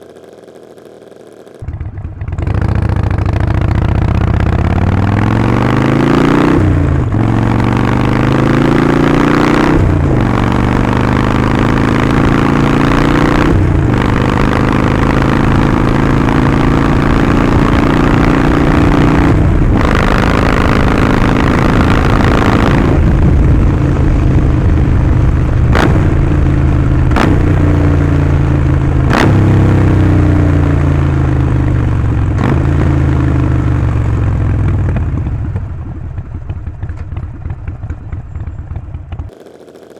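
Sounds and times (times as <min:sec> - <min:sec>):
exhaust cracks: 0:00.0 - 0:39.9
motorcycle engine accelerating: 0:00.0 - 0:39.9.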